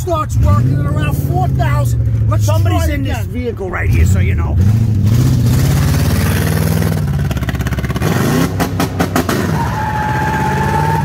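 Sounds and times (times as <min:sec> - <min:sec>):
car engine accelerating hard: 0:00.0 - 0:03.0, 0:03.9 - 0:11.0.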